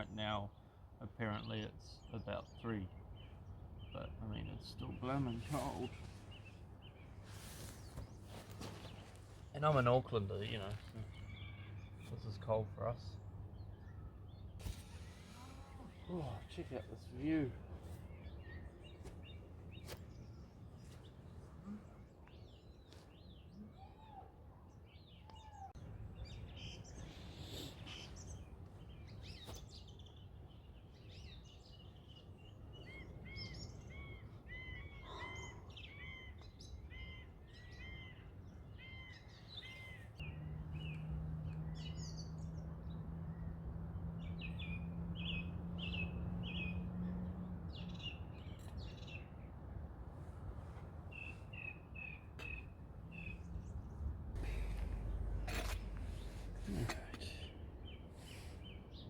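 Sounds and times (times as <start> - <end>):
birds chirping: 0.0 - 59.0
low outdoor rumble: 52.8 - 58.9.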